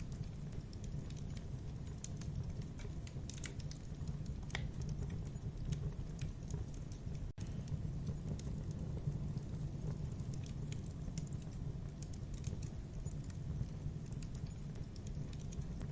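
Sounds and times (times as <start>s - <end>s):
campfire snaps and pops: 0.0s - 15.9s
flames rumbling: 0.0s - 15.9s.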